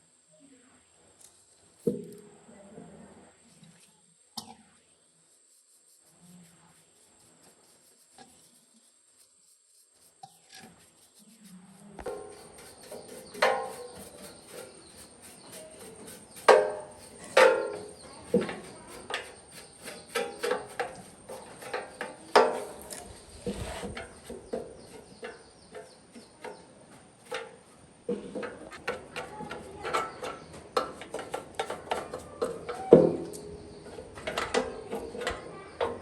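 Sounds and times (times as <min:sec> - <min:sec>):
hard parts knocking and clinking: 0:16.5 - 0:23.1, 0:28.1 - 0:36.0.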